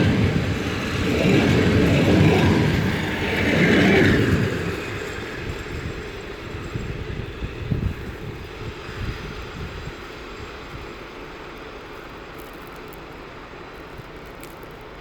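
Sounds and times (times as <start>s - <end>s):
train passing close by: 0.0s - 15.0s.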